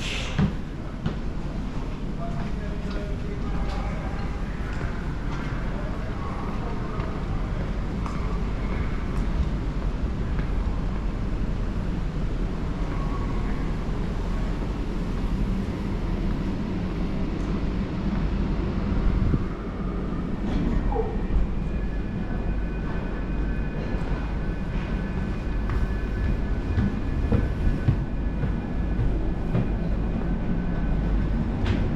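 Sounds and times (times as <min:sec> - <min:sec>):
heavy machinery rumble: 0:00.0 - 0:31.9.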